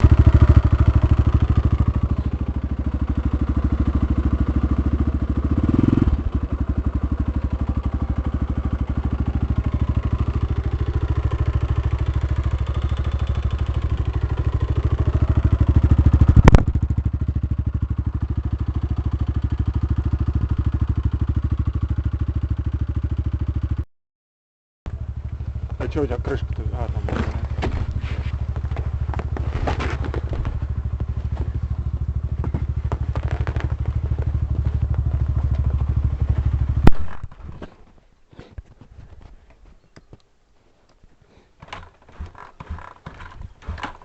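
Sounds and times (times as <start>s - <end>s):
dirt bike engine running: 0.0s - 23.8s, 24.9s - 37.6s, 41.6s - 44.0s.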